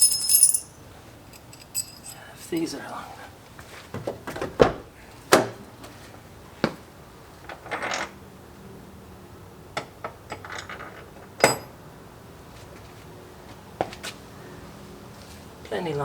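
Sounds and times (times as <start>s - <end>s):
metal bolts clinking: 0.0s - 2.8s, 10.3s - 11.7s
bolts rattling softly: 1.3s - 2.7s.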